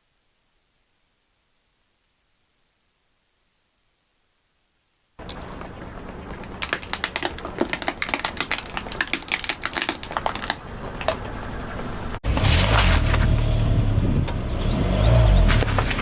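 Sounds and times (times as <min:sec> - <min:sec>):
brittle crackling under tyre: 0:05.2 - 0:16.0.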